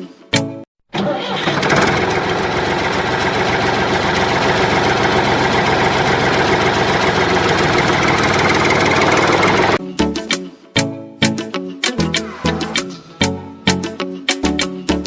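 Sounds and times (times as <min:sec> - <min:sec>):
small engine running steadily: 0:01.4 - 0:09.8.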